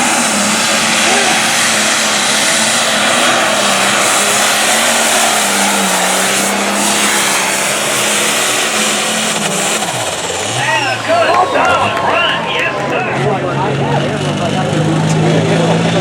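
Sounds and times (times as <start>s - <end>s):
diesel engine roaring at full throttle: 0.0s - 16.0s.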